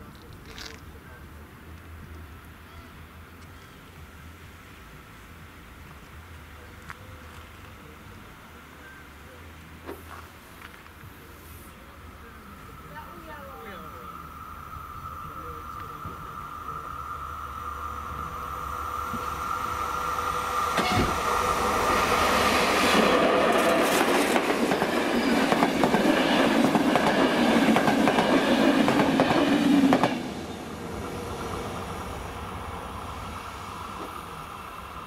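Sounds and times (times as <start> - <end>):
crossing warning signal tone: 12.9 - 21.5
train wheels clattering over rails: 20.6 - 30.5.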